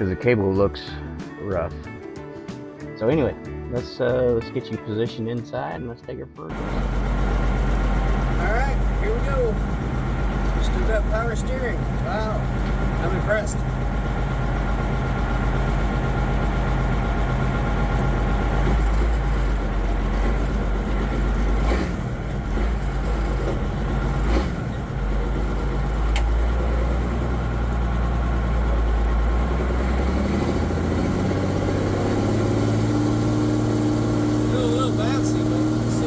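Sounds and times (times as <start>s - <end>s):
truck diesel engine droning: 6.5s - 36.0s
gear clunk: 25.6s - 26.4s.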